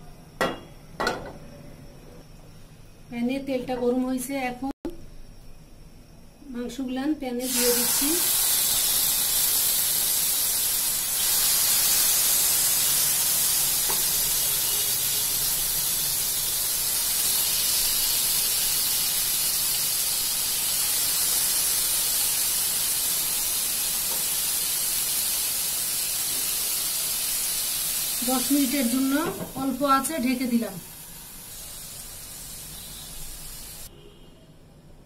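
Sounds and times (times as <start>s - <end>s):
chicken sizzling in oil: 7.4s - 33.9s.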